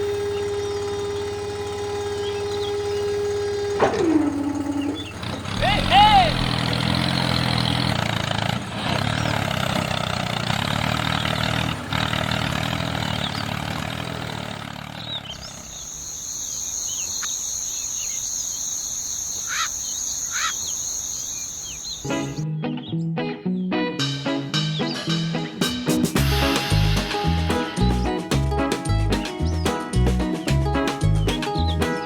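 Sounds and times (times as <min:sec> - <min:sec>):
small motor humming: 0:00.0 - 0:07.6
high-pitched tone: 0:24.0 - 0:28.8.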